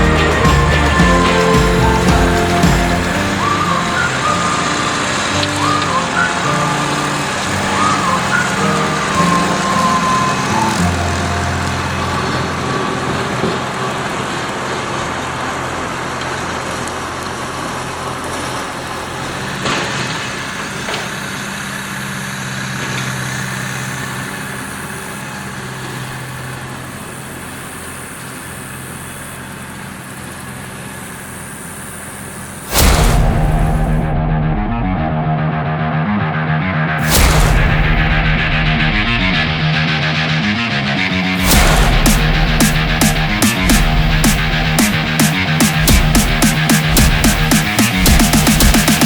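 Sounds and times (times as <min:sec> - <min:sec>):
tractor diesel engine running: 0:00.0 - 0:35.2
mechanical rush: 0:00.0 - 0:49.0.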